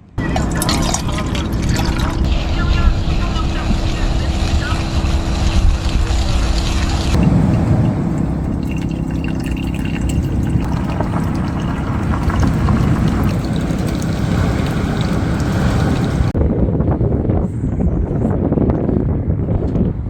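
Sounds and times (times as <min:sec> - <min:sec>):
sea water washing: 0:00.0 - 0:16.4
wind rumbling on microphone: 0:00.0 - 0:20.0.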